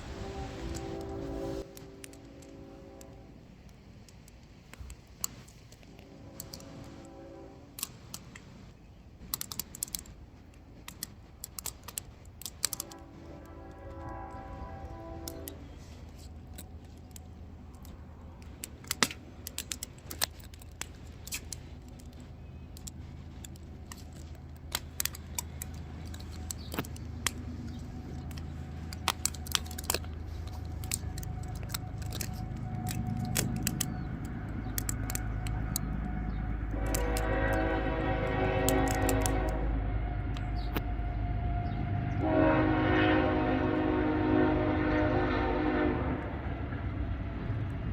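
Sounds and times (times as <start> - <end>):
deep rumble: 0.0 - 3.4, 20.8 - 47.9
multi-tone horn: 0.0 - 3.4, 5.9 - 7.9, 12.7 - 16.2, 34.6 - 46.6
firewood crackling and popping: 0.0 - 7.1, 7.7 - 39.6.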